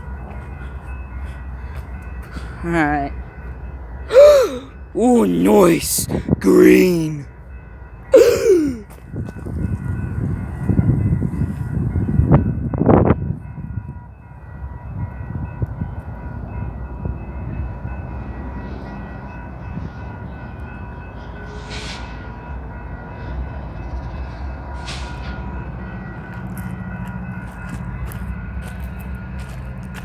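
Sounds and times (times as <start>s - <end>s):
train rumbling: 8.8s - 30.0s.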